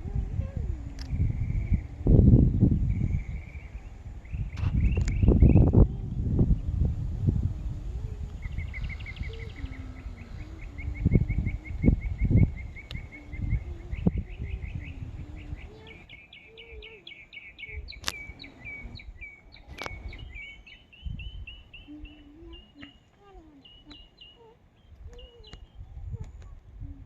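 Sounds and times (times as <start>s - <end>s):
wind rumble on microphone: 0.0s - 27.0s
bird chirping: 8.0s - 26.2s
sharp clicks: 18.0s - 18.4s, 19.7s - 20.2s.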